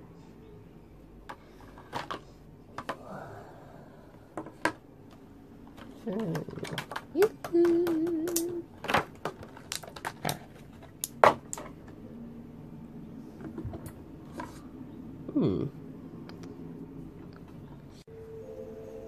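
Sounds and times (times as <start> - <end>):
plastic packaging clicks and rustling: 5.7 - 11.8.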